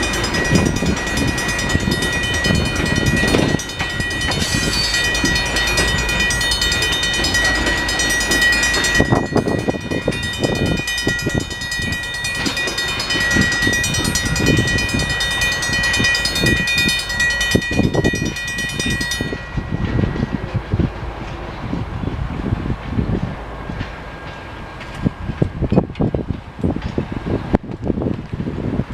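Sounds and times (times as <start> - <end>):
crossing bell ringing: 0.0 - 22.1, 23.2 - 27.6
train rumbling and clattering: 0.0 - 28.9.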